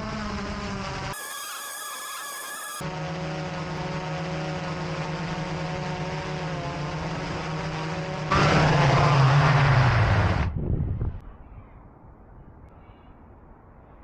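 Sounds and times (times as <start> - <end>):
drone propellers buzzing: 1.2 - 2.8.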